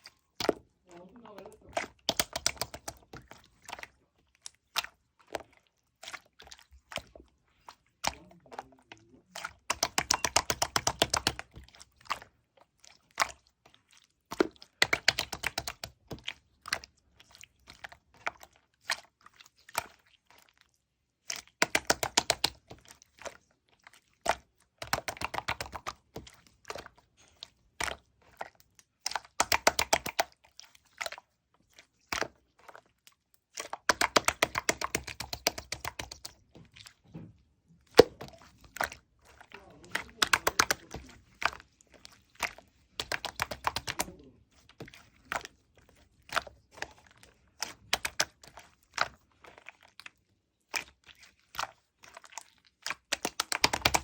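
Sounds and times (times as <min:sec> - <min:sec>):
slime crackling and popping: 0:52.7 - 0:54.0.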